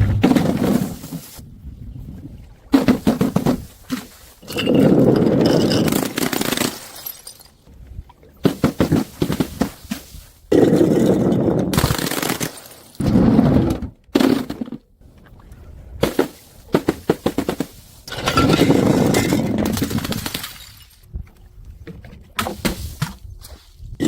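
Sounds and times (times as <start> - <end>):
glass bottles smashing: 4.4 - 7.6, 18.1 - 21.0
glass shards clattering: 4.4 - 7.6, 18.1 - 19.5.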